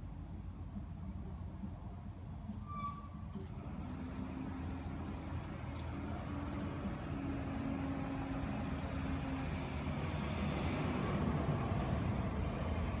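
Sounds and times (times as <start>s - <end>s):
vehicle engine hum: 3.5s - 13.0s.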